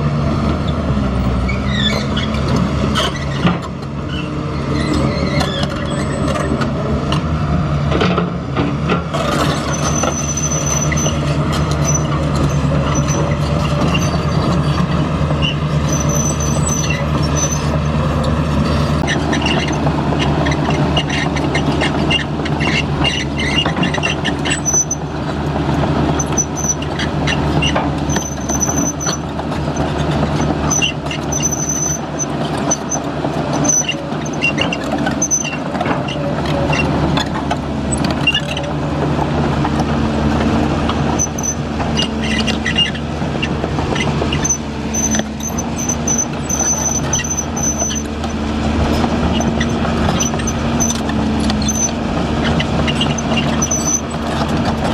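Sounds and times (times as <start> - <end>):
construction machine engine running: 0.0 - 54.9
high-pitched squeals: 41.2 - 48.4.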